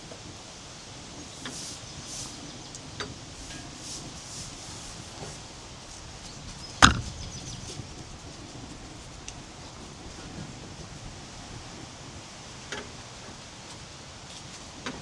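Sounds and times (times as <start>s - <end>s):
sharp knock: 6.8s - 7.3s.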